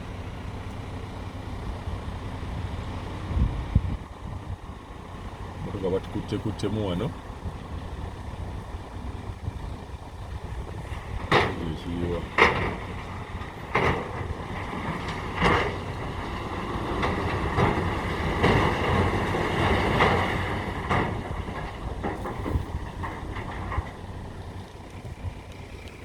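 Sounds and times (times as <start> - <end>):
dump truck engine rumble: 0.0 - 26.0
wind buffeting the microphone: 1.6 - 26.0.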